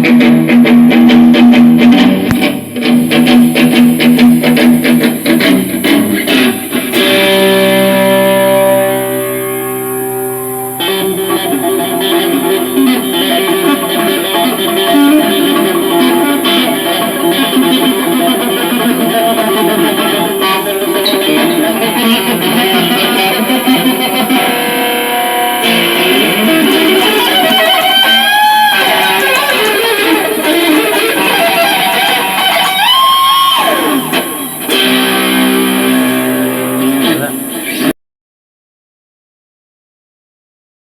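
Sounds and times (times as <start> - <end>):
amplified electric guitar riffing: 0.0 - 38.0.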